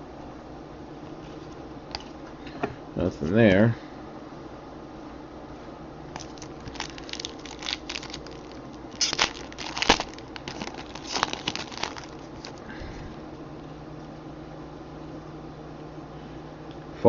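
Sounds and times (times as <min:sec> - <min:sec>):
foil wrapper crinkling: 0:06.1 - 0:12.6.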